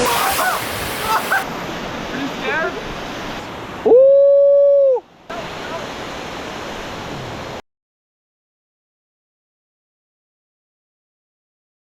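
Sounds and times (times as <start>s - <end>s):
waterfall rushing: 0.0s - 4.0s, 5.3s - 7.6s.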